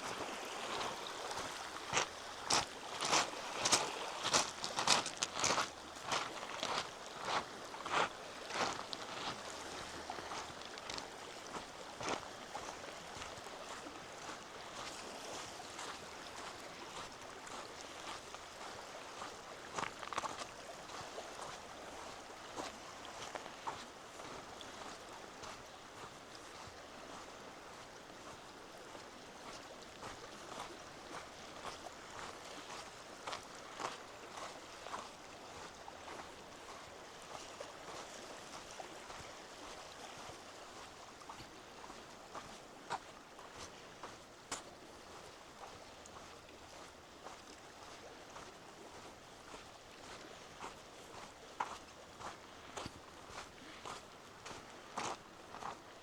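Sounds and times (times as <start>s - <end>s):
flowing water: 0.0s - 56.0s
footsteps on a trail: 1.0s - 11.2s, 17.4s - 21.0s, 40.2s - 55.9s.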